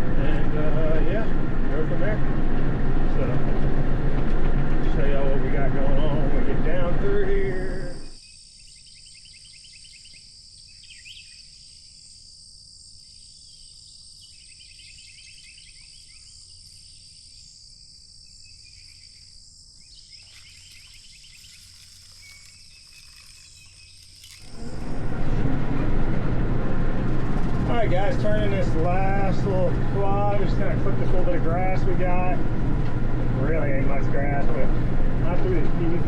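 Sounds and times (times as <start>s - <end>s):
insects trilling: 7.0s - 32.3s
rapid insect chirping: 7.3s - 30.7s
faint low hum: 18.4s - 36.0s.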